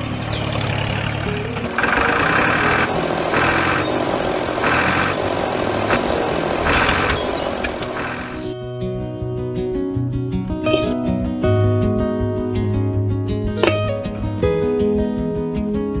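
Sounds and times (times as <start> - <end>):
vehicle engine humming: 0.0 - 8.6
music: 0.0 - 16.0.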